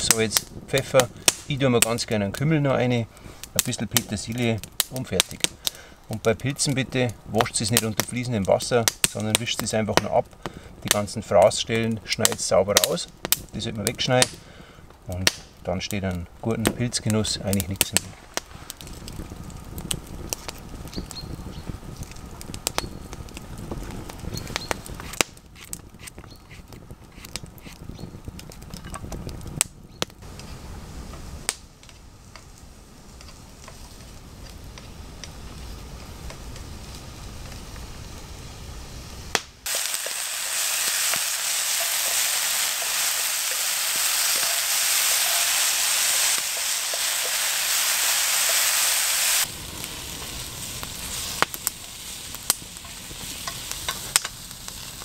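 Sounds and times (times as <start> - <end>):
wood fire crackling: 0.0 - 55.0
mushrooms sizzling in hot oil: 17.2 - 25.3, 30.4 - 55.0.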